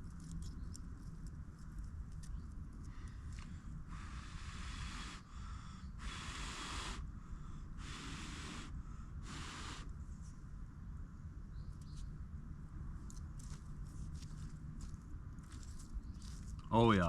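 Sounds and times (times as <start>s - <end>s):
person blowing on embers: 3.9s - 9.9s.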